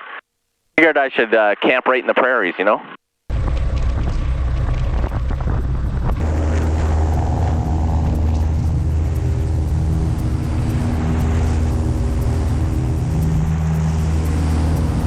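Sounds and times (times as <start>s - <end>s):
propeller airplane engine: 3.3s - 15.0s.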